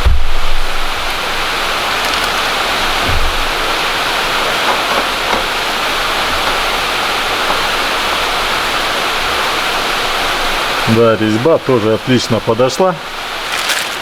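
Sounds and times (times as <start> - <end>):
heavy rain hiss: 0.0 - 14.0.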